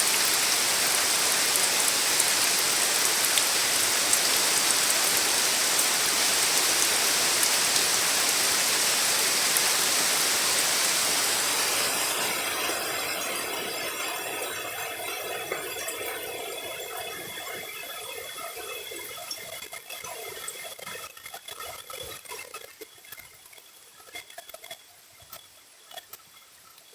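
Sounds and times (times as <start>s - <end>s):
heavy rain falling: 0.0s - 16.6s
water drips and patter: 0.0s - 26.9s.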